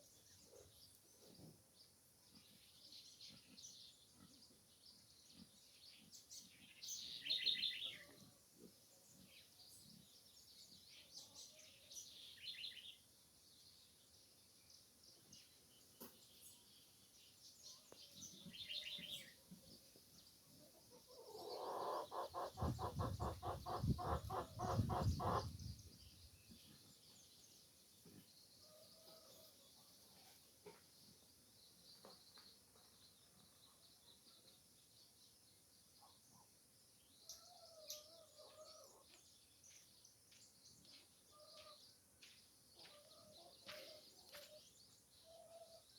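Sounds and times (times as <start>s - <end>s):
birds chirping: 21.0s - 28.4s.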